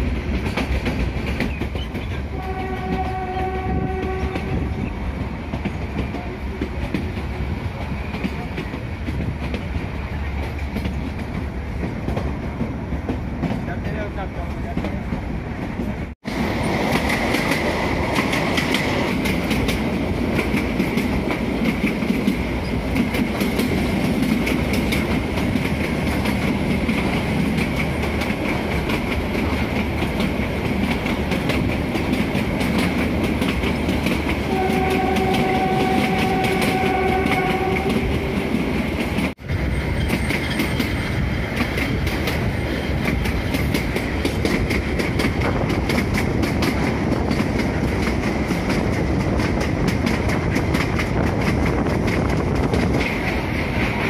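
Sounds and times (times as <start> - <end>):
train wheels clattering on rails: 0.0 - 54.0
train horn: 2.3 - 4.9, 34.4 - 38.6.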